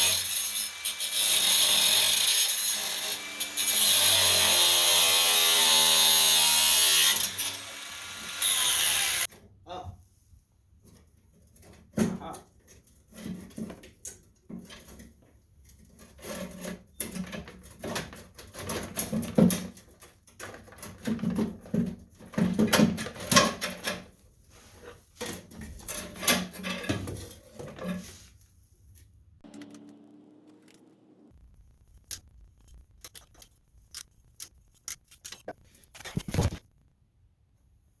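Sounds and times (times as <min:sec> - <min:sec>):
hand tools clicking on metal: 0:32.0 - 0:35.5.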